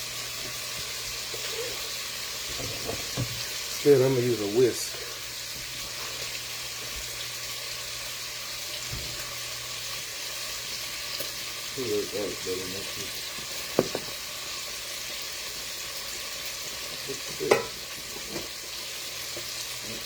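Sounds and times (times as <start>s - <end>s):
meat sizzling in a pan: 0.0s - 20.0s
sharp knocks: 13.8s - 14.1s.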